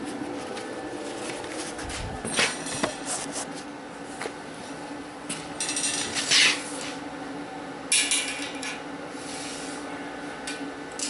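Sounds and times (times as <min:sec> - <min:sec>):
tape measure blade scraping: 0:06.1 - 0:07.0.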